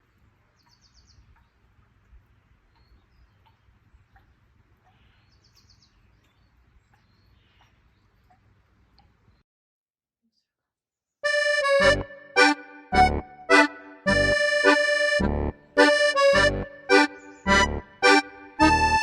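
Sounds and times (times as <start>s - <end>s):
bird chirps and trills: 2.6s - 8.4s, 17.0s - 17.6s.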